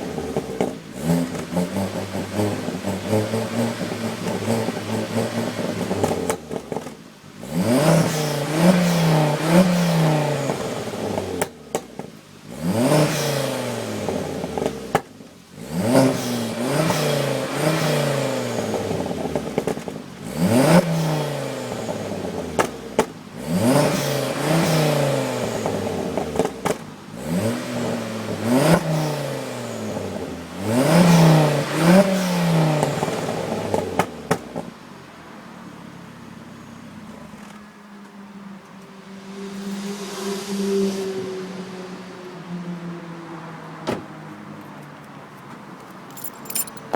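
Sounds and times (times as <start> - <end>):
car engine revving: 0.0 - 34.8.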